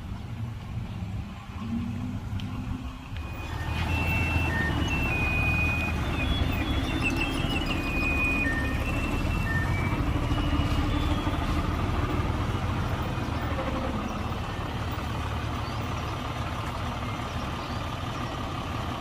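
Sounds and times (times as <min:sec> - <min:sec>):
heavy diesel machinery rumbling: 0:00.0 - 0:19.0.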